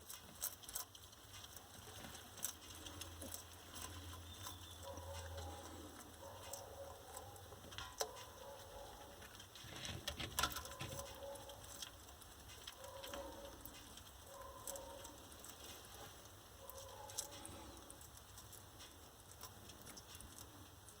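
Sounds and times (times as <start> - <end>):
lizard feeding clicks and taps: 0.0 - 21.0.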